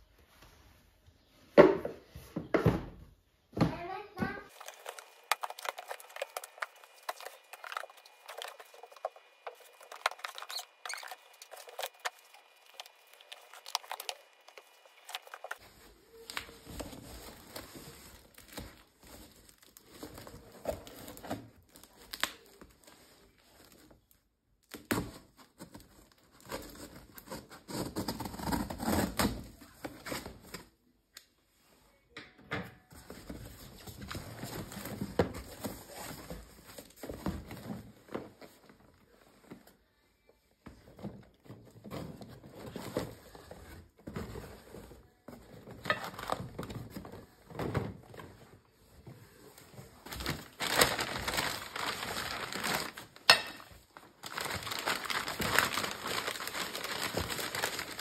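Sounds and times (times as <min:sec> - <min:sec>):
rustling: 0:04.5 - 0:24.2, 0:40.7 - 0:58.0.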